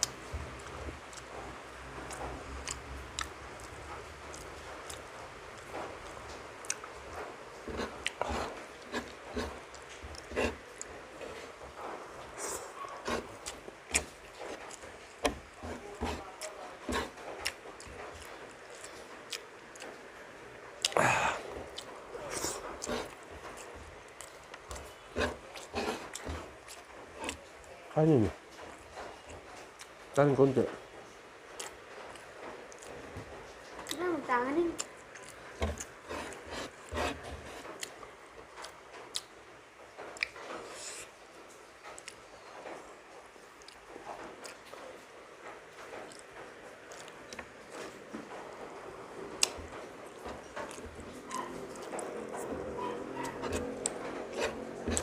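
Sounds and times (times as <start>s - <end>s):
person chewing and mouth smacks: 2.0s - 6.9s, 7.7s - 10.9s, 12.4s - 20.0s, 20.8s - 27.4s, 31.5s - 33.0s, 34.8s - 36.9s, 40.1s - 41.1s, 41.9s - 42.2s, 43.6s - 43.8s, 44.4s - 44.7s, 46.0s - 46.3s, 46.9s - 47.9s, 49.4s - 55.0s.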